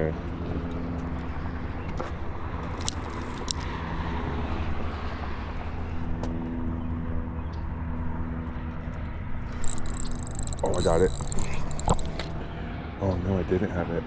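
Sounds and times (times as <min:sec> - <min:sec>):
low mechanical drone: 0:00.0 - 0:14.0
sharp clicks: 0:09.5 - 0:12.3.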